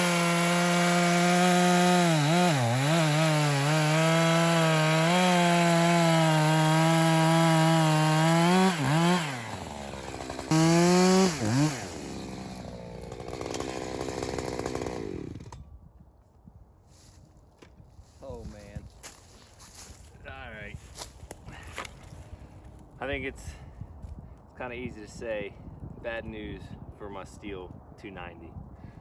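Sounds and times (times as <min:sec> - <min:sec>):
chainsaw cutting wood: 0:00.0 - 0:15.6
chainsaw idling: 0:00.0 - 0:15.6.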